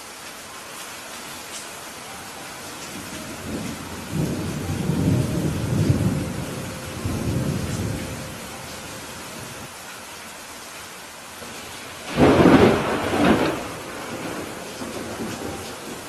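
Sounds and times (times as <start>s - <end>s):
heavy rain: 0.0s - 16.0s
thunder rumbling: 2.6s - 9.7s, 11.4s - 16.0s.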